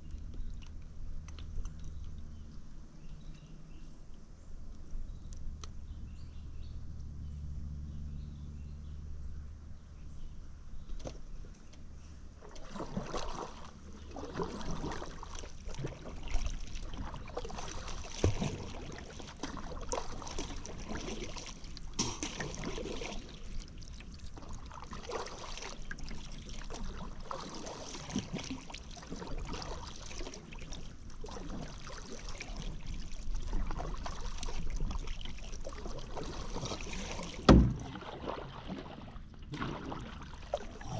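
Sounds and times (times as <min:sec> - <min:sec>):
low steady hum: 0:00.0 - 0:40.9
paddle splashing in river water: 0:10.8 - 0:40.9.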